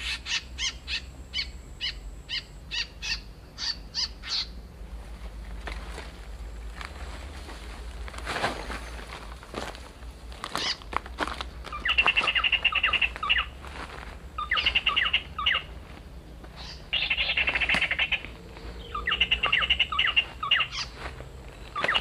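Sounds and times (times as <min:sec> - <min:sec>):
bird chattering call: 0:00.0 - 0:04.6, 0:11.7 - 0:13.6, 0:14.4 - 0:15.8, 0:16.5 - 0:21.0, 0:21.7 - 0:22.0.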